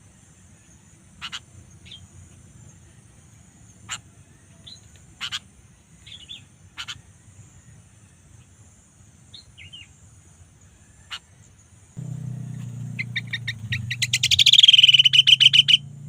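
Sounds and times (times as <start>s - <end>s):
bulbul chirping calls: 1.2s - 2.1s, 4.6s - 5.5s, 6.1s - 7.0s, 12.0s - 16.0s.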